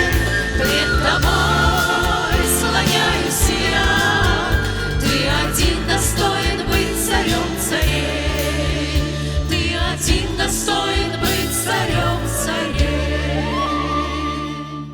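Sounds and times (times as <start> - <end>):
instrumental accompaniment: 0.0 - 14.9
steady bass line: 0.0 - 14.9
vocal group singing worship song: 0.0 - 14.9.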